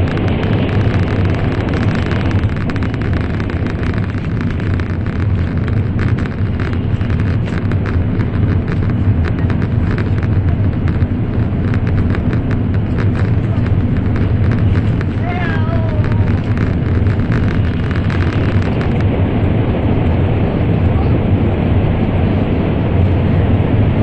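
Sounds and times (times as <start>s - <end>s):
small clicks and rattles: 0.0s - 19.1s
train cabin rumble: 0.0s - 24.0s.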